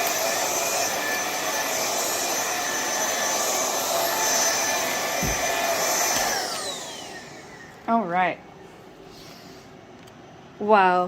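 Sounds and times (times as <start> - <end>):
vacuum cleaner motor whine: 0.0 - 8.9
low thump: 5.2 - 5.5.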